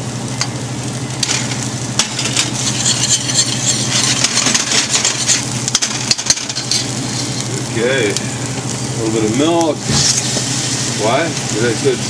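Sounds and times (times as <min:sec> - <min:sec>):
steady low hum: 0:00.0 - 0:12.0
vegetables sizzling in a pot: 0:00.0 - 0:12.0
utensil clicking and scraping: 0:02.3 - 0:07.5.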